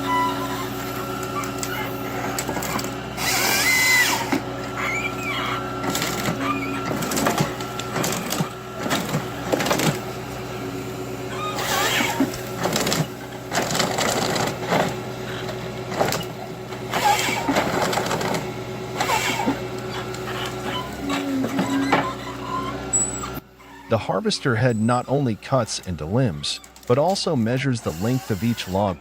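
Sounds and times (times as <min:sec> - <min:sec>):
short squeaks: 0:00.0 - 0:10.1, 0:11.2 - 0:18.4, 0:19.0 - 0:29.0
diesel engine running: 0:00.0 - 0:29.0
wood cracking and knocking: 0:05.8 - 0:10.1.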